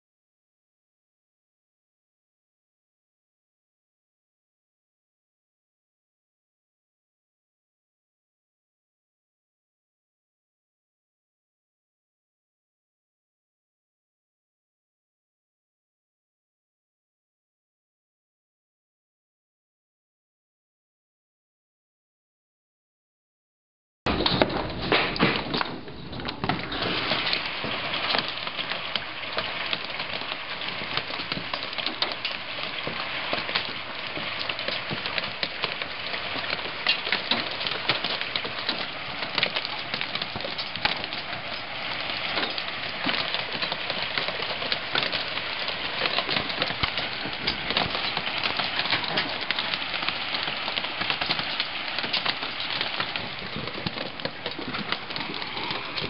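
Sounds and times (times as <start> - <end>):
hailstones clattering: 24.1 - 56.0.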